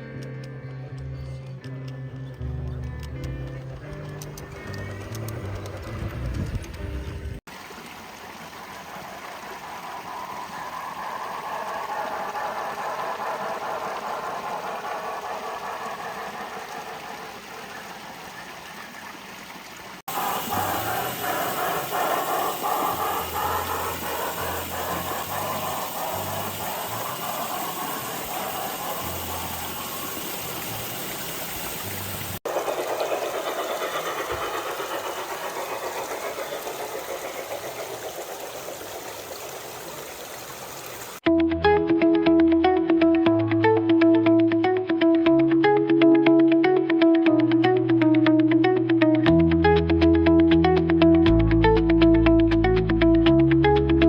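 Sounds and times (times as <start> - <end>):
wheels clicking over rails: 0.2 - 7.4, 8.7 - 18.6, 20.1 - 40.0
model train motor rumble: 2.4 - 7.4, 9.0 - 18.0, 20.1 - 39.8.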